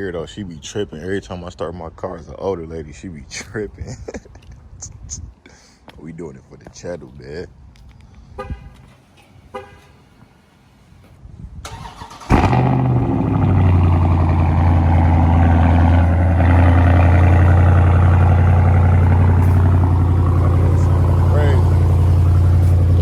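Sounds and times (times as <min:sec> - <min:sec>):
car engine starting and idling: 0:11.7 - 0:23.0.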